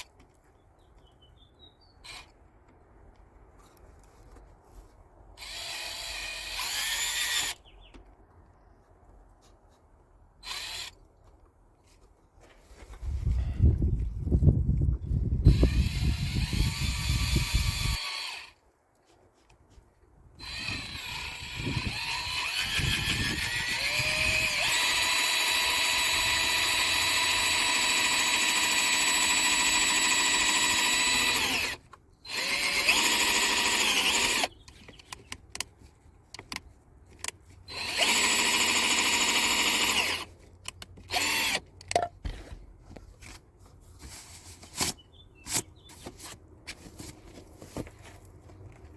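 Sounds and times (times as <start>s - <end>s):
power drill whining: 2.0s - 2.3s, 5.4s - 7.6s, 10.4s - 11.0s, 15.4s - 18.6s, 20.4s - 34.6s, 37.7s - 40.3s, 41.0s - 41.6s.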